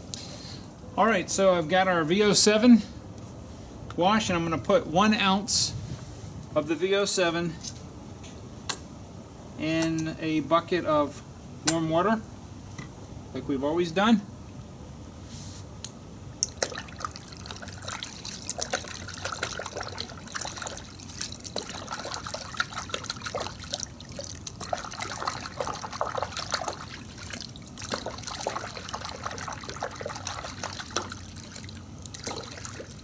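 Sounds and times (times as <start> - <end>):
water splashing in a bucket: 16.4 - 33.0.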